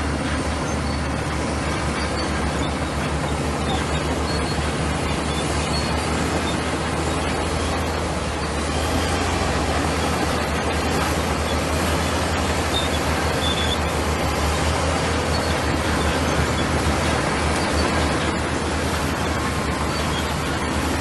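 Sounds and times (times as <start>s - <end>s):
bulldozer diesel engine running: 0.0s - 21.0s.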